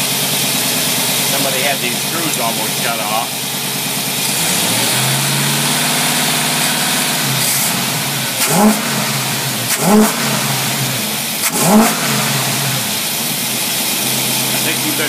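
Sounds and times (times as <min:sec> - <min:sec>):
engine idling and revving: 0:00.0 - 0:15.0.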